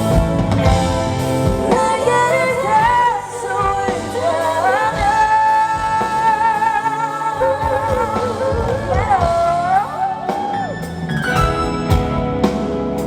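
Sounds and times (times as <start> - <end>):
live band playing pop music: 0.0 - 13.0
woman singing: 1.4 - 10.7.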